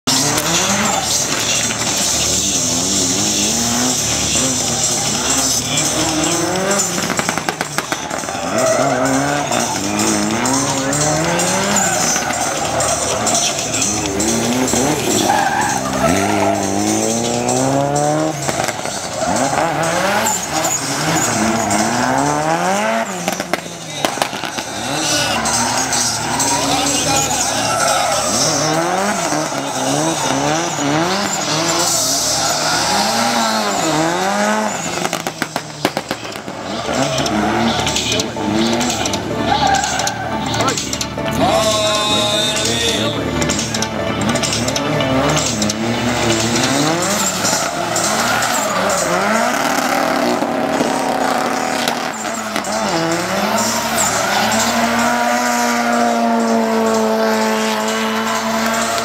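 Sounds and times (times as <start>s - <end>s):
rapid exhaust pops: 0.0s - 41.4s, 42.6s - 59.0s
car engine revving hard: 0.0s - 59.0s
tyres squealing on tarmac: 0.0s - 59.0s.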